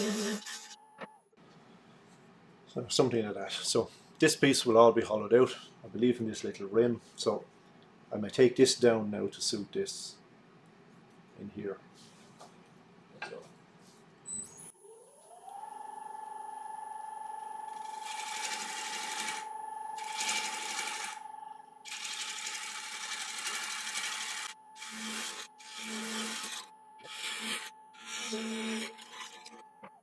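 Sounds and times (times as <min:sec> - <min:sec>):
wood lathe whine: 0:14.8 - 0:30.0
turning tool cutting wood: 0:17.6 - 0:29.9.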